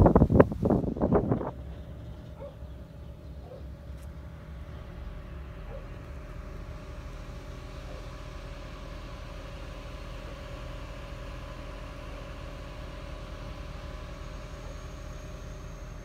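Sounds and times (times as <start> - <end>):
motor humming with faint whine: 0.0 - 16.0.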